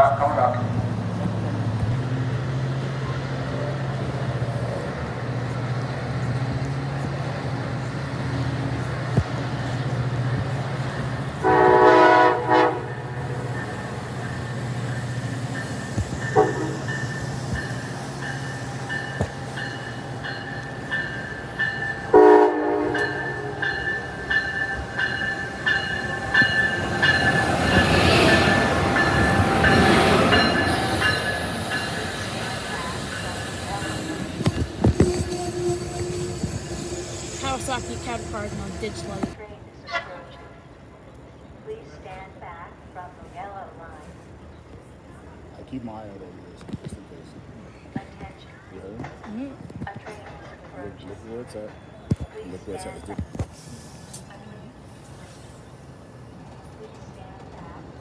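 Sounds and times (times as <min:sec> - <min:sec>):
train rail noise: 0:00.0 - 0:58.0
train horn blasts: 0:11.3 - 0:15.0, 0:15.9 - 0:18.1, 0:21.4 - 0:40.2.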